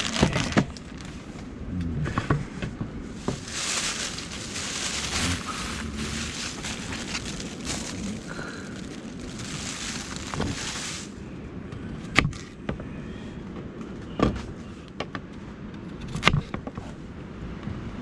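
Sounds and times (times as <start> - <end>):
low wind rumble: 0.0 - 12.2.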